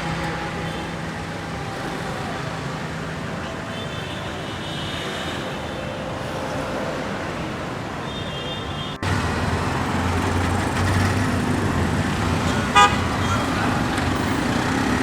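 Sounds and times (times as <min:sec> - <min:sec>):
street traffic passing: 0:00.0 - 0:15.0
low engine hum: 0:09.0 - 0:15.0.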